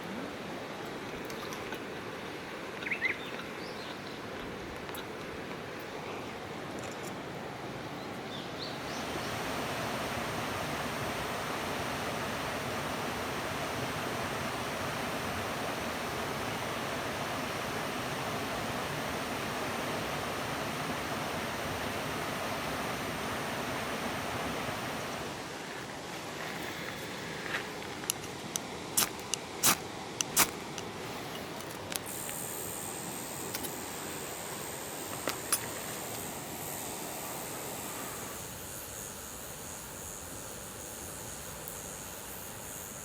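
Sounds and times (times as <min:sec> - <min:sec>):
river water flowing: 0:00.0 - 0:32.0.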